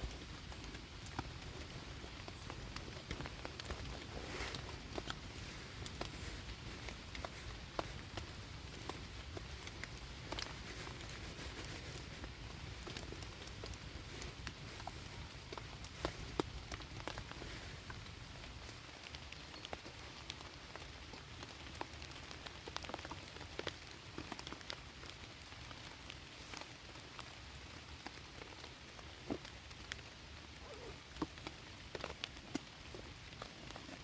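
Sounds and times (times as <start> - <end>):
raindrops landing close by: 0.0 - 34.0
steady rain falling: 0.0 - 34.0.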